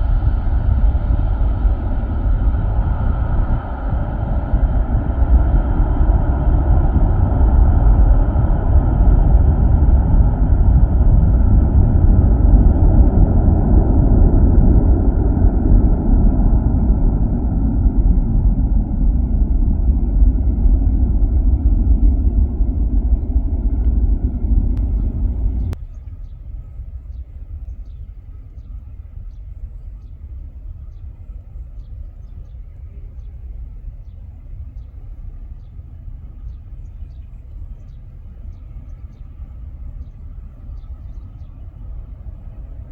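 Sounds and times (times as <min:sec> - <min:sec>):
airliner engines rumbling: 0:00.0 - 0:42.9
steady engine whine: 0:00.0 - 0:42.9.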